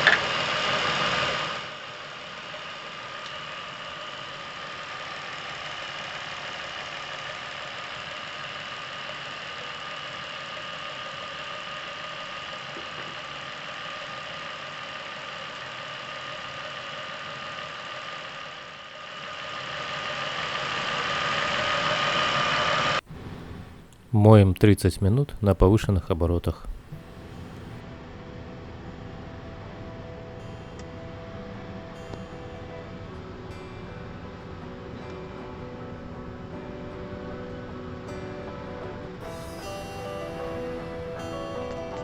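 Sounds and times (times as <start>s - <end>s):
car engine running: 0.0s - 24.1s, 26.2s - 27.8s.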